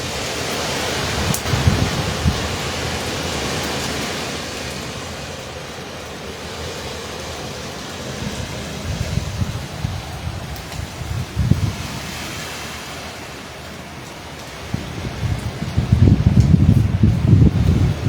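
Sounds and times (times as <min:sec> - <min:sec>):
wind buffeting microphone: 0:00.0 - 0:04.5, 0:07.8 - 0:13.1, 0:14.4 - 0:18.0
rushing wind and rain: 0:00.0 - 0:18.0.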